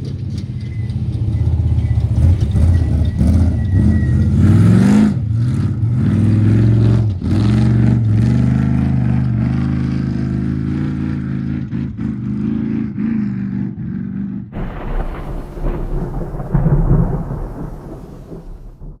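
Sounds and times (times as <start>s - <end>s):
race vehicle engine running hard: 0.0s - 14.6s.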